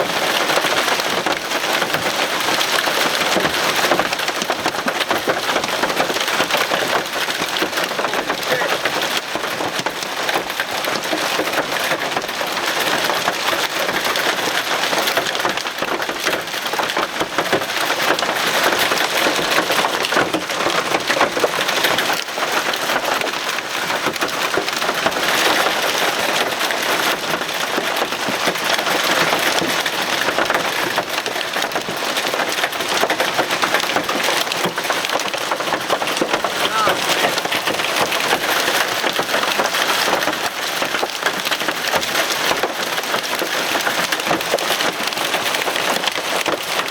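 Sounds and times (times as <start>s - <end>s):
heavy rain pelting down: 0.0s - 46.9s.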